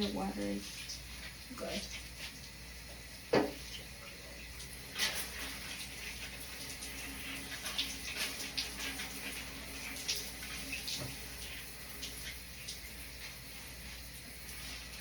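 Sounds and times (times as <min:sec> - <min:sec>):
tap water splashing into bathtub: 0:01.9 - 0:03.9, 0:04.6 - 0:13.4.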